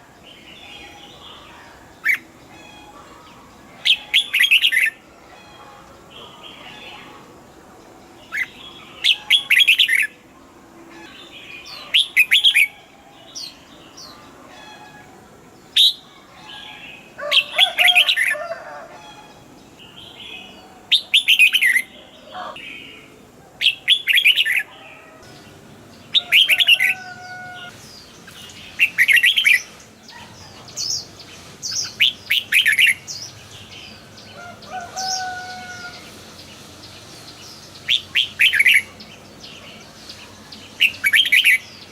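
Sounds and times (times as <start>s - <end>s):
fainter bird calls: 0.0s - 41.9s
bird singing bright notes: 15.7s - 41.9s.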